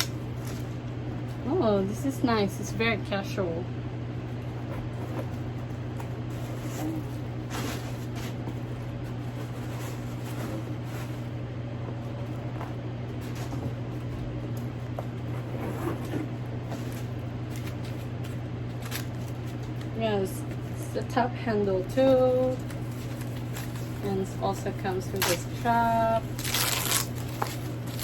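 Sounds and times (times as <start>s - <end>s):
steady low hum: 0.0s - 28.0s
handbag packaging rustling: 22.1s - 28.0s.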